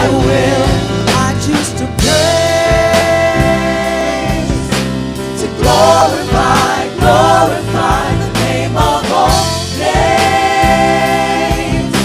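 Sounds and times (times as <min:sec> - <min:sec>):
band playing: 0:00.0 - 0:12.0
people singing worship song: 0:00.0 - 0:12.0.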